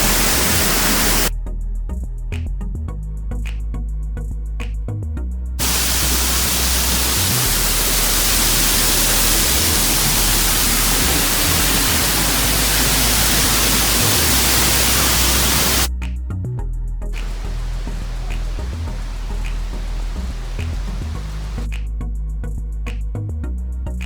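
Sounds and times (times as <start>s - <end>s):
waterfall rushing: 0.0s - 1.3s, 5.6s - 15.9s, 17.2s - 21.6s
bass of background music: 1.3s - 24.0s.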